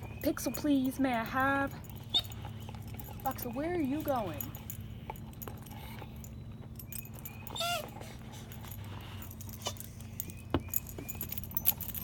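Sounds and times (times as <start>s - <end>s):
dog whining: 1.8s - 12.0s.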